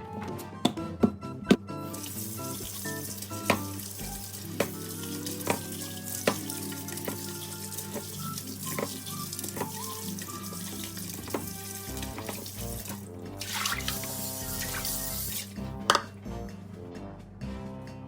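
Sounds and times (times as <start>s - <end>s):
background music: 0.0s - 18.0s
food sizzling in a frying pan: 1.9s - 12.5s
utensil knocking against pan: 15.9s - 16.1s.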